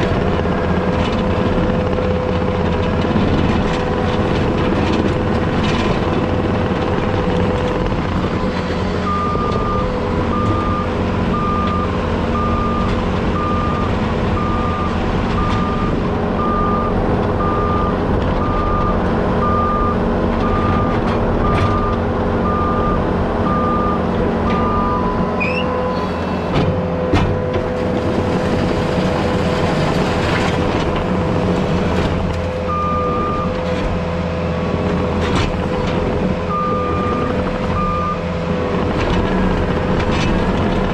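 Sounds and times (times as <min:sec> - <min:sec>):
heavy diesel equipment running: 0:00.0 - 0:40.9
reversing alarm beeping: 0:09.0 - 0:26.0, 0:32.7 - 0:33.5, 0:36.4 - 0:38.3.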